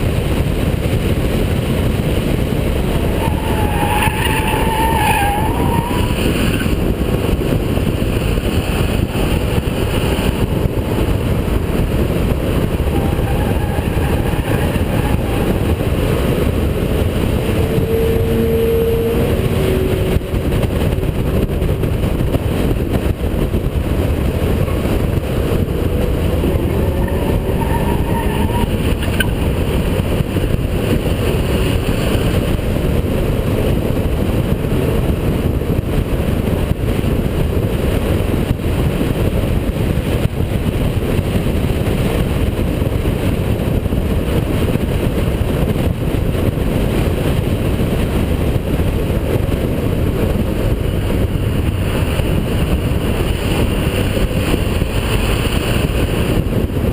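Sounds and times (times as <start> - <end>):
race car engine at speed: 0.0 - 56.9
road and wind noise: 0.0 - 56.9.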